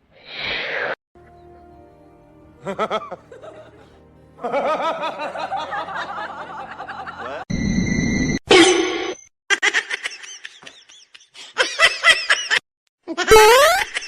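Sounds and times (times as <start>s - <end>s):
background music: 1.2s - 7.5s
pitched laughing: 2.6s - 7.5s.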